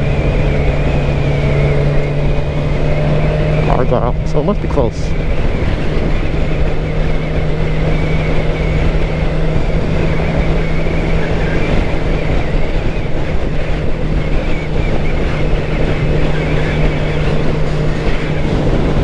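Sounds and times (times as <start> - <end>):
motorcycle engine cruising: 0.0 - 19.0
wind and road rumble: 0.0 - 19.0.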